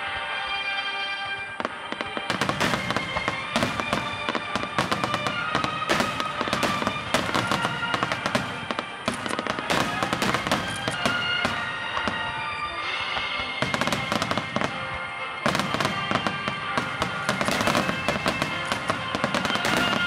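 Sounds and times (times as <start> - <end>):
fireworks bursting with crackling: 1.2 - 20.0.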